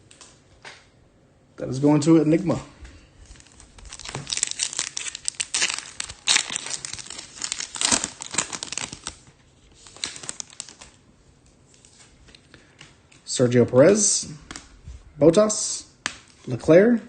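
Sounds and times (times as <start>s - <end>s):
foil wrapper tearing and crinkling: 3.3s - 11.0s.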